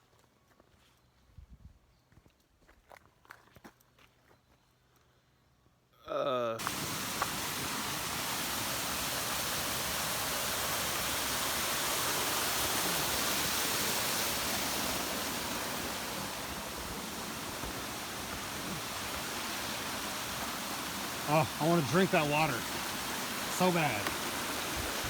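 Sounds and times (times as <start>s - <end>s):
stream water rushing: 6.6s - 25.0s.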